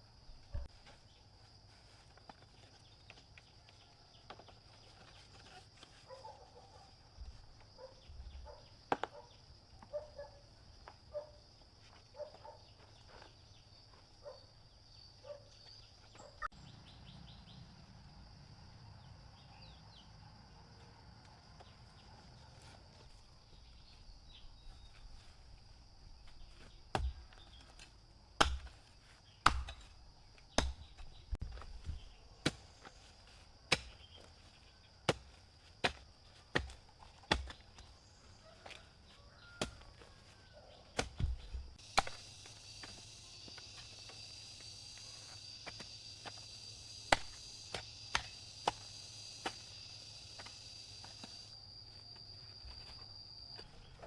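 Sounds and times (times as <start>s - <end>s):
blade chopping strikes: 29.5s - 29.9s, 41.0s - 42.3s, 47.1s - 49.6s
high insect drone: 41.3s - 54.0s
loud wide insect buzz: 41.7s - 53.5s.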